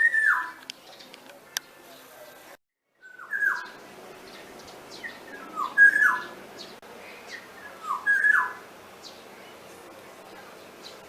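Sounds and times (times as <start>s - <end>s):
mynas calling: 3.0s - 11.0s
soft bird chirps: 3.0s - 11.0s.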